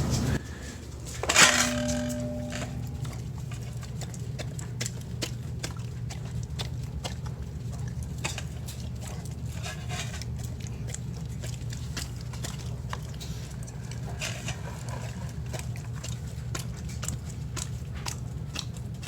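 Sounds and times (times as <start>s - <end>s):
steady low hum: 0.0s - 9.6s
dog chewing and licking food: 1.0s - 19.0s.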